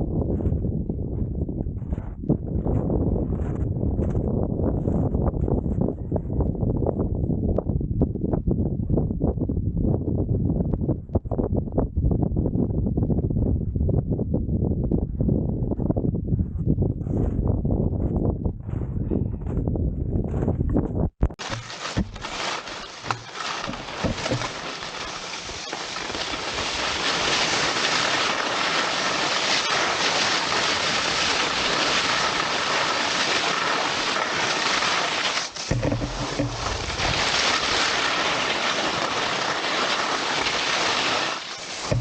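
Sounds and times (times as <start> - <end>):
skis scraping over hard snow: 1.8 - 5.8, 21.4 - 42.0
knocks: 35.7 - 36.8.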